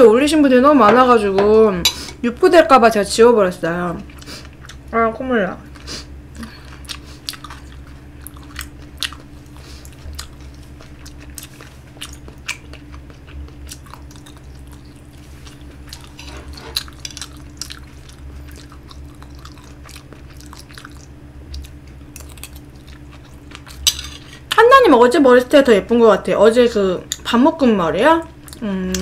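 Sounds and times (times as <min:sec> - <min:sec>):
steady low hum: 0:00.0 - 0:29.0
person chewing: 0:04.1 - 0:04.9, 0:05.7 - 0:24.6.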